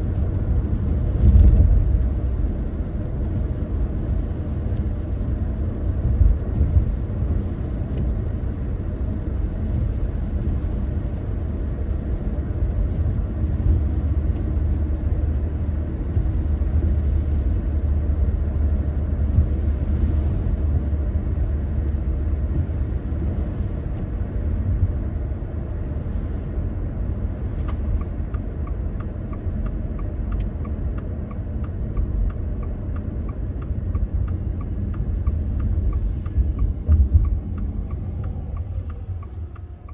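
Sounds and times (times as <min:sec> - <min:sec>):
car road rumble: 0:00.0 - 0:39.9
turn indicator ticking: 0:27.6 - 0:39.9.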